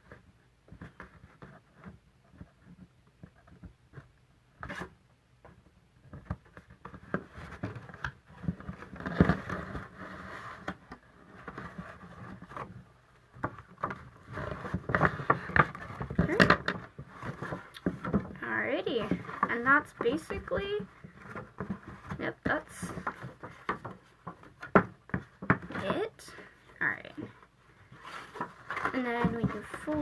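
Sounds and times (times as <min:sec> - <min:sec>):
paper folding and rustling: 0:06.1 - 0:26.6, 0:27.2 - 0:30.0.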